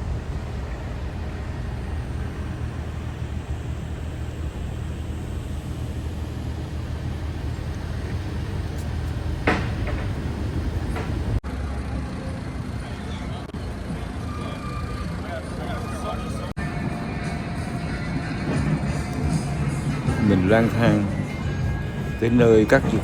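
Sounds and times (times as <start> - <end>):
hum of vehicle engines: 0.0 - 23.0.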